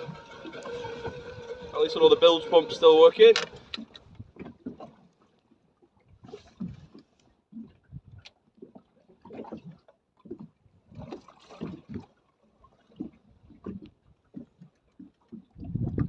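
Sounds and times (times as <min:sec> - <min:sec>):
water slapping against boat hull: 0:03.2 - 0:16.0.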